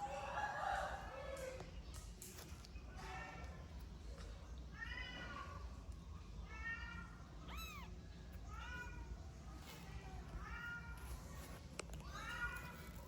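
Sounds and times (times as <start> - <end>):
kitten meowing: 7.4 - 8.0.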